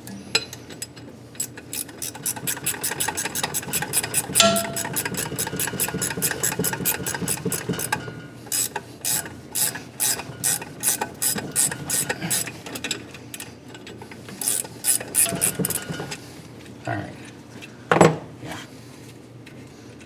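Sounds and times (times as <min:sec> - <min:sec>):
hand ratchet clicking: 0:01.4 - 0:07.9, 0:08.5 - 0:13.0, 0:14.3 - 0:15.9.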